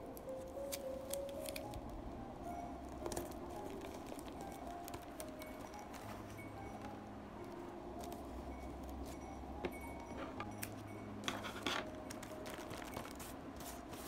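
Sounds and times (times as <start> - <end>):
twine rustling on paper: 11.3 - 14.0.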